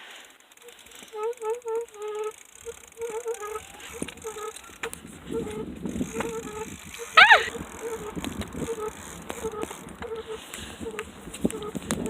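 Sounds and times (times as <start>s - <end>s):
bicycle squeaking: 0.0s - 12.0s.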